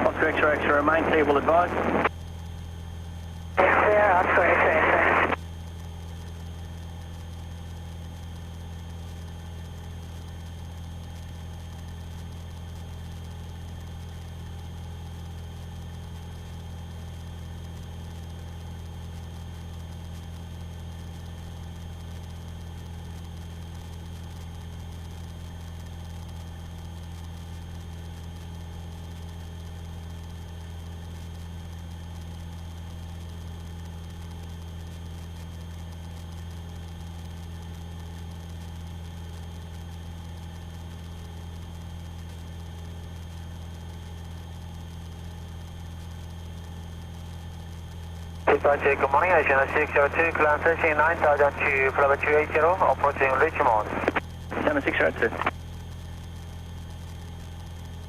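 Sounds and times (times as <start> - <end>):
aircraft piston engine drone: 0.0 - 2.1, 48.5 - 55.5.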